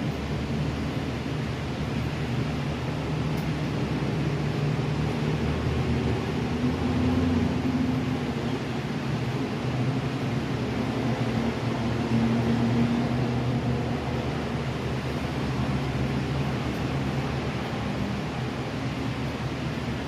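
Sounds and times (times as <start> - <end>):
low engine-like hum: 0.0 - 20.0
steady rushing noise: 0.0 - 20.0.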